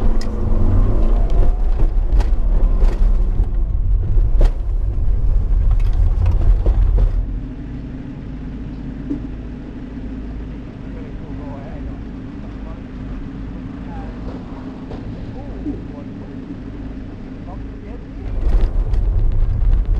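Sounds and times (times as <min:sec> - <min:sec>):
car engine worked hard: 0:00.0 - 0:19.9
quiet steady engine: 0:00.0 - 0:19.9
sharp engine knocks: 0:09.0 - 0:09.4.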